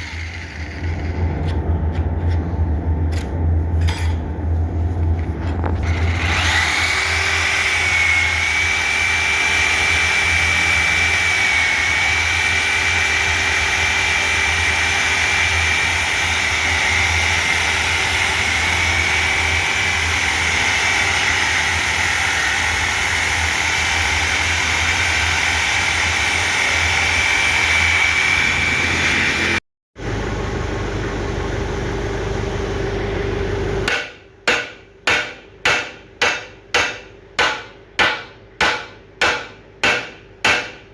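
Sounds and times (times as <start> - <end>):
power tool whining: 0.0 - 1.3, 5.7 - 29.6.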